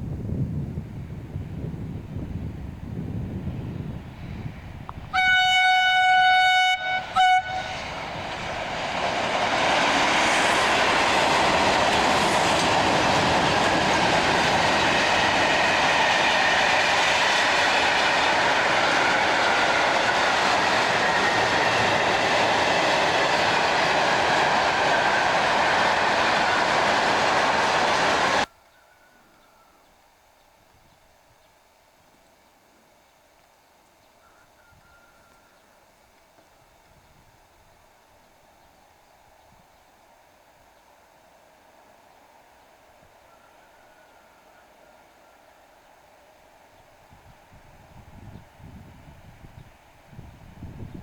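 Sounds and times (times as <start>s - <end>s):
train rumble and wheel clatter: 0.0s - 28.5s, 36.2s - 51.0s
train horn blasts: 5.0s - 8.0s.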